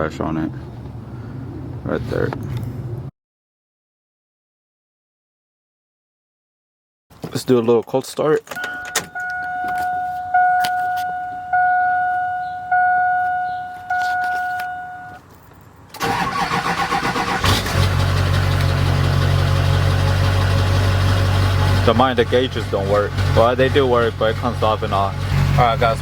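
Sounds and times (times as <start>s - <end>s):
dashboard warning chime: 8.5s - 15.2s
starter motor cranking: 16.0s - 23.9s
engine idling: 16.0s - 26.0s.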